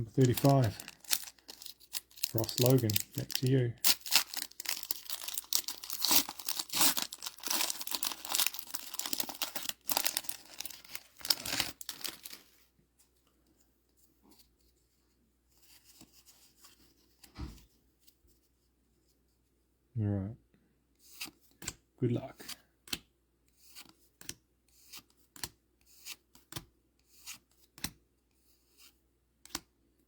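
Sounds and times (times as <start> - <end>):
wrapper tearing and crinkling: 0.0 - 12.6.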